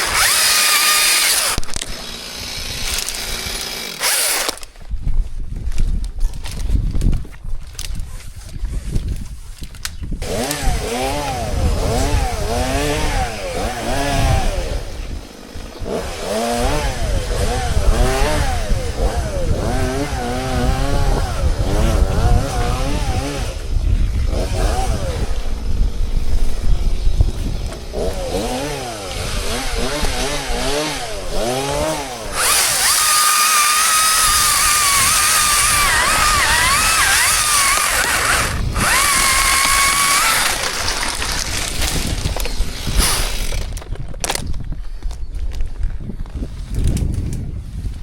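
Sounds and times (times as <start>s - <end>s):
chainsaw revving and cutting: 0.0s - 4.7s, 10.2s - 26.7s, 27.5s - 44.4s.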